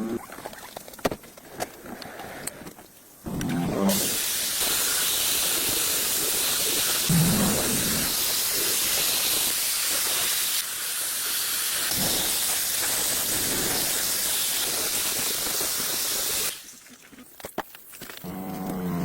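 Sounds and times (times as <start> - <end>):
steady spraying hiss: 3.1 - 17.4.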